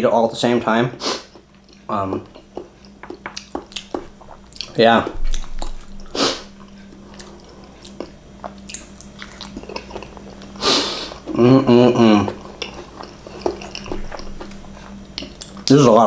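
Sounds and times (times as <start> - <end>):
wet chewing and mouth clicks: 1.4 - 10.6, 12.2 - 15.8
person humming mmm: 9.5 - 14.5.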